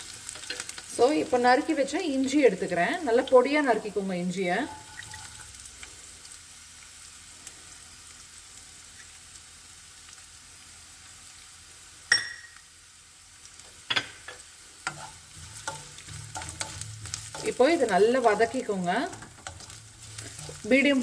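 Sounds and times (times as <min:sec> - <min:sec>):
ginger and chillies sizzling in oil: 0:00.0 - 0:21.0
sharp metallic clink: 0:12.1 - 0:12.6.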